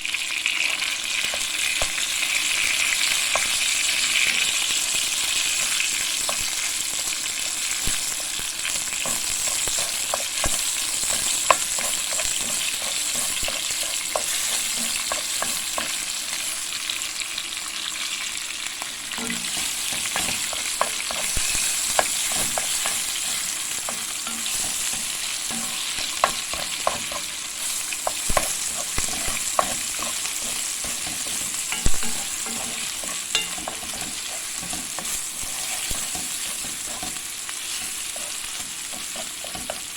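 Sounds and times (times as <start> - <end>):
food sizzling in a pan: 0.0 - 39.9
utensil tapping against pan: 9.0 - 16.0, 19.2 - 27.3, 27.9 - 39.9.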